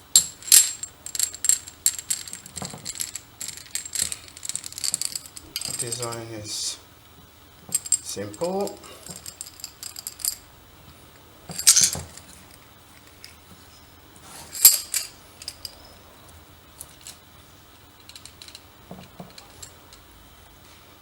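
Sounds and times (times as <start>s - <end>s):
small hard parts clinking: 0.0s - 6.4s, 7.6s - 10.5s, 11.5s - 13.4s, 14.2s - 17.3s, 17.9s - 20.2s
louder rattles: 0.2s - 6.2s.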